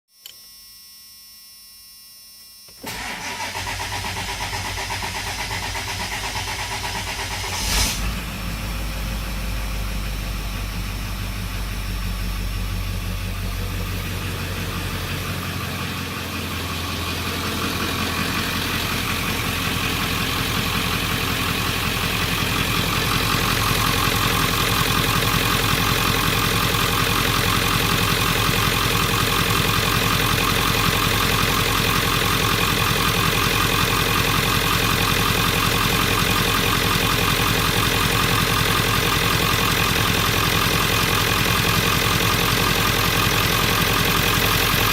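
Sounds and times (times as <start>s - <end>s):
diesel engine starting and idling: 2.8s - 44.9s
brief loud sound: 7.4s - 8.5s.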